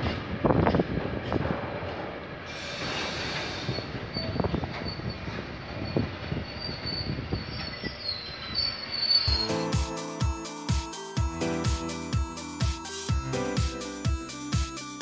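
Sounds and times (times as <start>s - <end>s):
wheels squealing on rails: 0.0s - 10.7s
electronic music with a beat: 9.3s - 15.0s.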